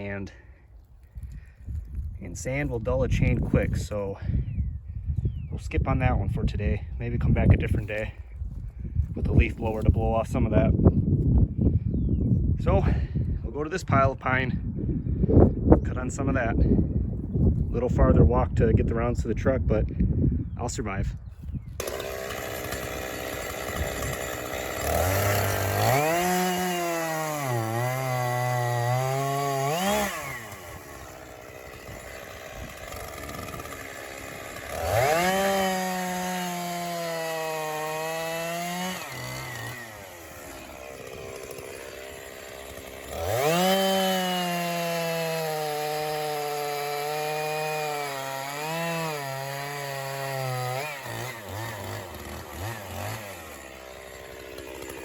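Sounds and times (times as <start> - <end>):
chainsaw cutting logs: 0.0 - 4.5, 7.1 - 11.3, 21.4 - 55.0.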